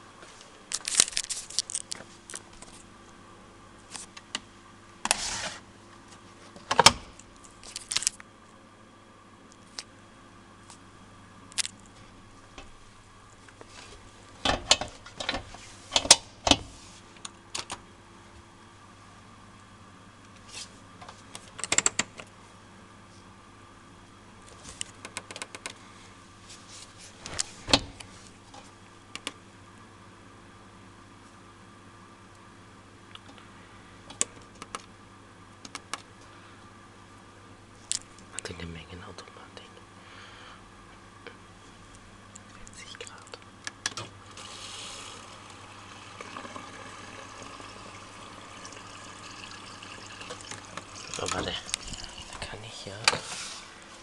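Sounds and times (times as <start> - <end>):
faint steady hum: 0.0 - 54.0
washing machine clicks and knocks: 14.4 - 15.4
washing machine filling with water: 44.2 - 52.6.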